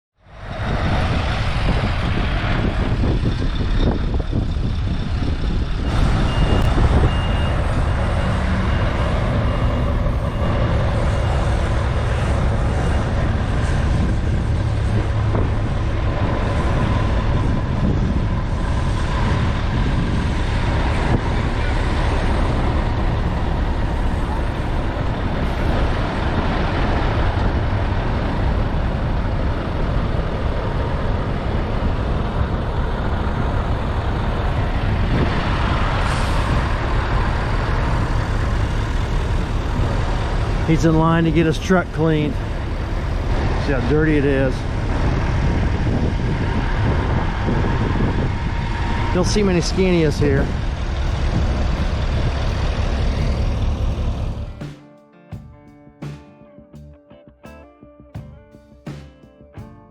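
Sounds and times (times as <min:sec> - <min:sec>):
diesel engine rumbling: 0:00.2 - 0:54.8
reversing alarm beeping: 0:05.8 - 0:13.4.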